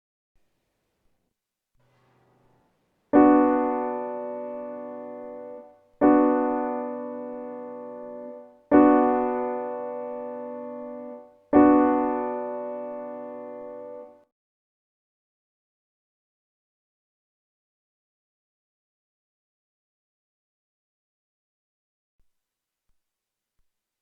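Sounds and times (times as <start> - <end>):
piano chords ringing: 2.2 - 14.3.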